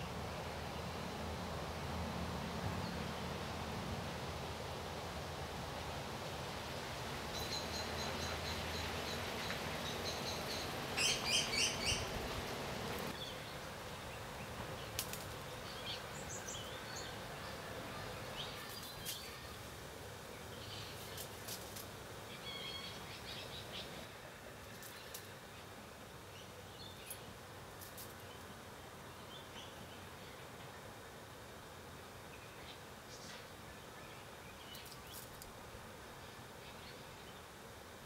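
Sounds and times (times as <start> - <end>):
steady hiss: 0.0 - 38.0
birds chirping: 7.3 - 19.6.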